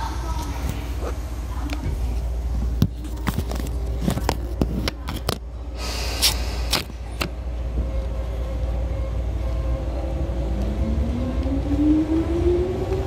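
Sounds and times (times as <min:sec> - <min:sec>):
electric train rumbling: 0:00.0 - 0:13.0
brief hiss: 0:05.8 - 0:06.9.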